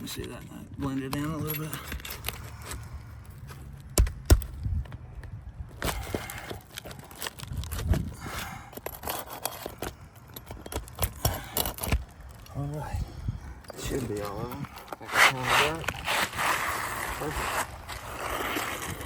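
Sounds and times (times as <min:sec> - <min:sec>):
metal tool scraping shingle: 0:13.8 - 0:19.0.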